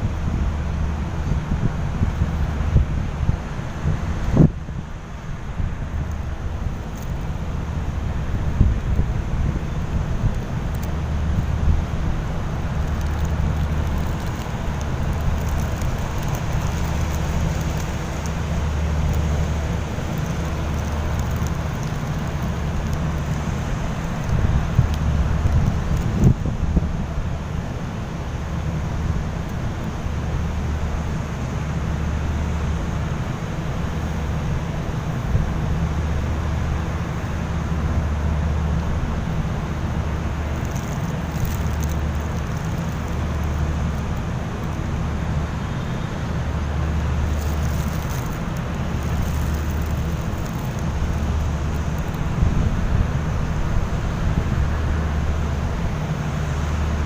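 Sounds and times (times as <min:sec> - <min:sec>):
wind on microphone: 0:00.0 - 0:27.5, 0:47.3 - 0:56.1
ship engine rumble: 0:00.0 - 0:57.0.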